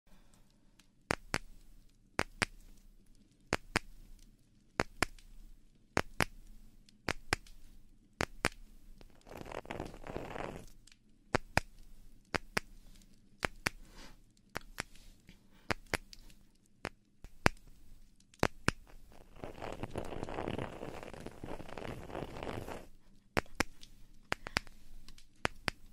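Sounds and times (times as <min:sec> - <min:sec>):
sharp crisp clicks: 0:00.3 - 0:25.9
soft rustling: 0:01.5 - 0:25.9.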